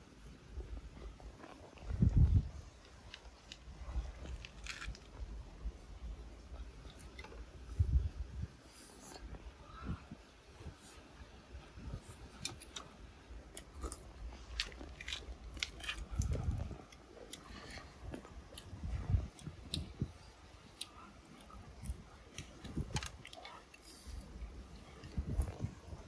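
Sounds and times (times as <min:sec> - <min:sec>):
person chewing food: 0:12.0 - 0:24.4.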